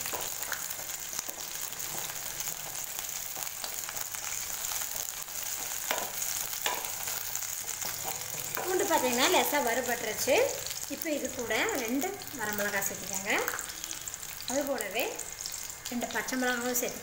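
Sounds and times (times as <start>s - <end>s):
shallots and garlic sizzling in oil: 0.0s - 17.0s
wooden spatula knocking against pan: 5.9s - 6.9s.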